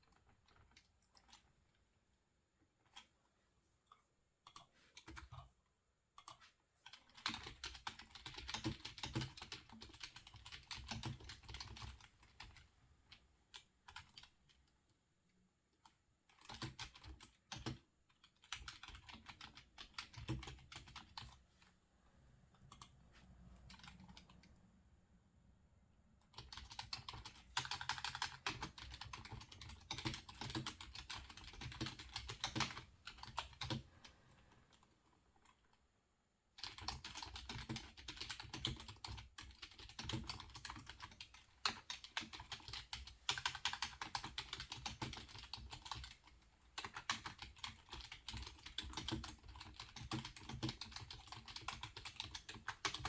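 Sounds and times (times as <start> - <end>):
typing on computer keyboard: 6.2 - 12.7, 13.5 - 14.7, 15.8 - 21.4, 23.6 - 24.6, 26.2 - 35.8, 36.6 - 53.0.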